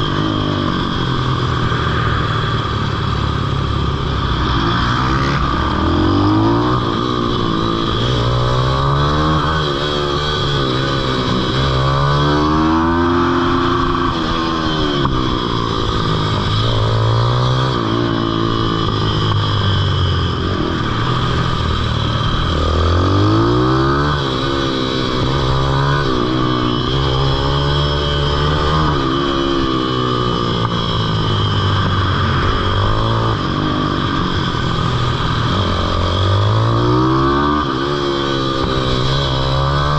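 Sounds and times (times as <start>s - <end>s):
small motorbike engine revving: 0.0s - 39.9s.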